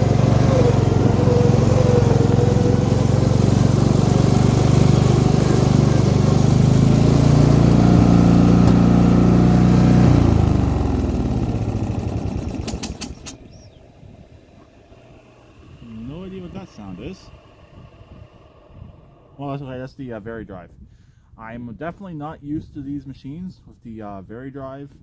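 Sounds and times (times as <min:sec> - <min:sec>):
lawn tractor engine running: 0:00.0 - 0:19.3
sharp clicks: 0:12.6 - 0:13.5.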